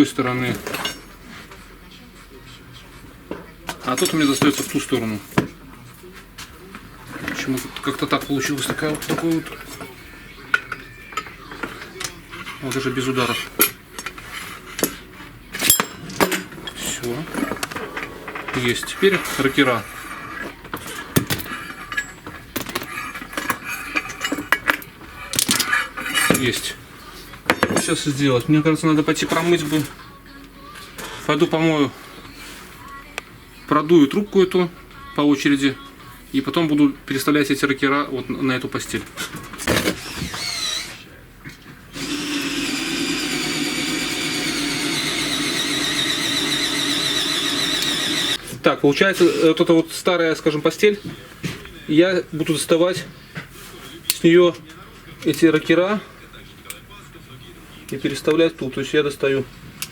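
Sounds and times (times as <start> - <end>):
metal parts clinking and knocking: 21.2 - 26.5
small electric motor whirring: 40.0 - 41.0, 42.0 - 48.4.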